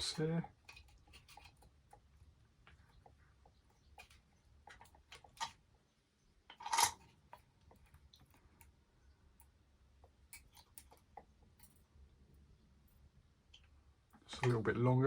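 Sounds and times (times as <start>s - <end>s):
metal strips clicking and rattling: 0.0s - 2.1s, 6.5s - 8.5s.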